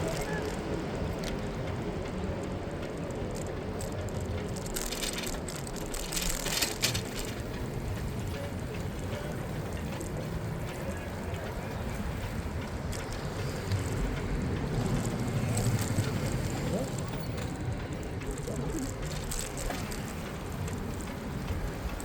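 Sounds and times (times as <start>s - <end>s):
road noise: 0.0s - 22.0s.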